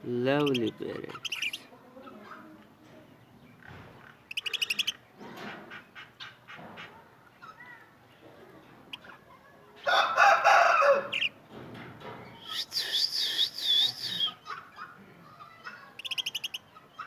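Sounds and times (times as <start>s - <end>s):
rooster crowing: 9.9s - 11.2s
shrill wavering bird call: 12.4s - 14.4s.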